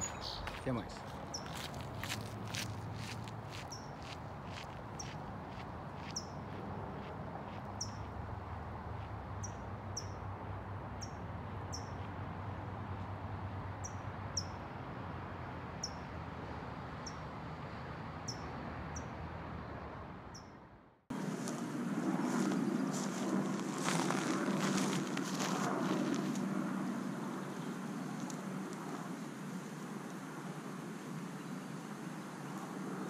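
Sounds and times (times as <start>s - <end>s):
bird chipping: 0.0s - 1.7s
steady outdoor hiss: 0.0s - 20.4s, 21.1s - 33.0s.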